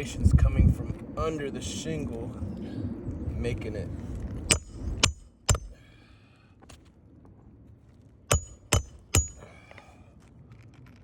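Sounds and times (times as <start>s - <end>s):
hammer driving nail into shingle: 4.5s - 5.8s, 8.3s - 9.4s.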